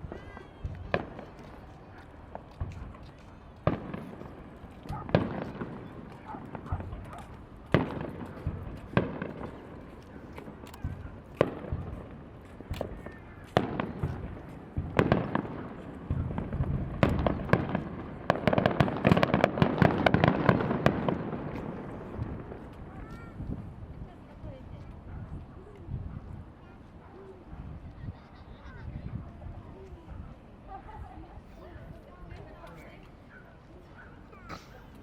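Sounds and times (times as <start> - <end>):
fireworks bursting: 0.0 - 23.9.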